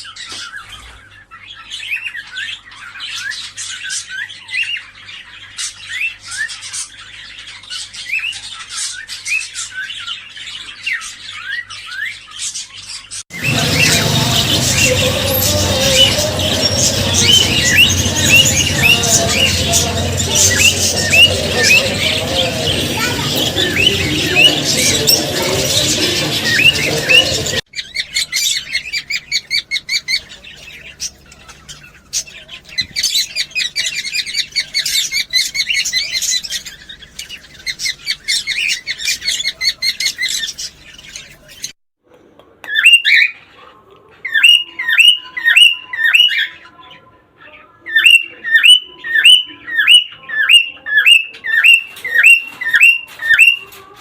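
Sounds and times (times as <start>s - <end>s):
cockatiels chirping: 1.6s - 41.7s
rapid twittering: 13.3s - 41.8s
repeated rising bird calls: 13.4s - 41.3s.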